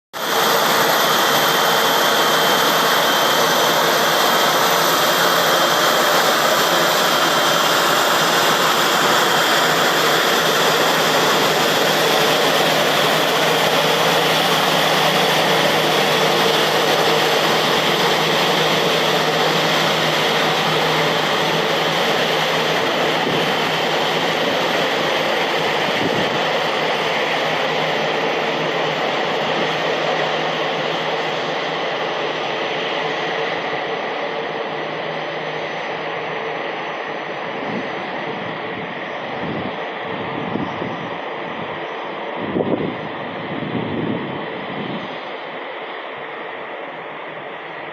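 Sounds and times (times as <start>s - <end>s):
high engine whine: 0.2s - 47.9s
jet engines running: 0.2s - 47.9s.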